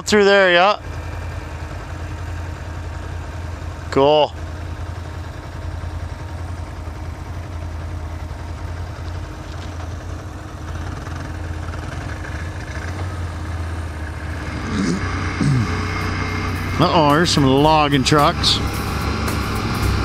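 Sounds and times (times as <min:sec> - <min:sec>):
atv engine running: 0:00.0 - 0:20.0
steady rushing noise: 0:14.1 - 0:20.0.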